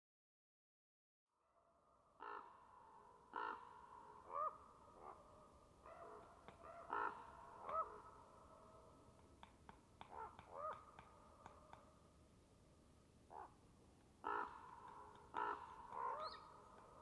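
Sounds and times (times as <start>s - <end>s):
birds calling: 5.8s - 8.2s, 14.2s - 17.0s.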